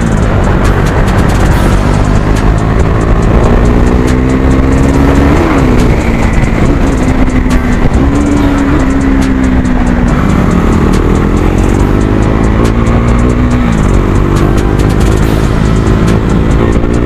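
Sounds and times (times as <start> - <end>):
motorcycle engine running loud: 0.0 - 17.0.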